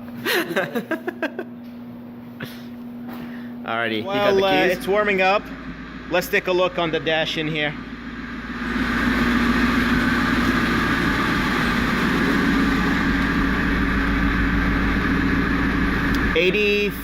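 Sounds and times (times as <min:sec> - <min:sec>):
car engine idling: 0:04.3 - 0:17.0.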